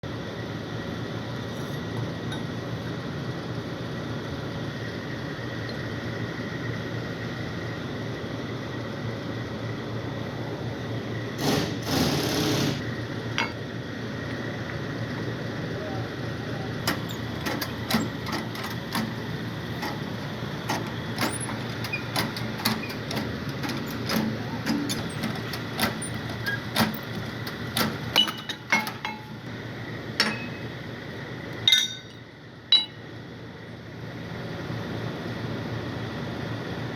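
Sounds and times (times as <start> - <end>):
steady background hum: 0.0 - 36.9
tools tapping and knocking on metal: 13.4 - 13.6, 16.8 - 29.4, 30.2 - 30.7, 31.7 - 33.0.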